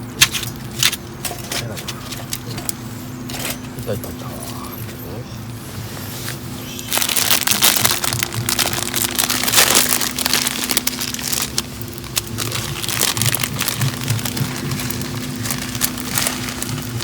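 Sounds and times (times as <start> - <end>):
wood fire crackling and popping: 6.9 - 17.0.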